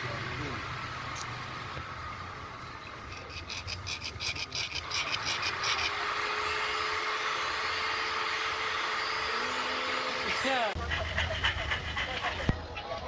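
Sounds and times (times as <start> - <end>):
power saw motor whining: 2.1 - 10.7.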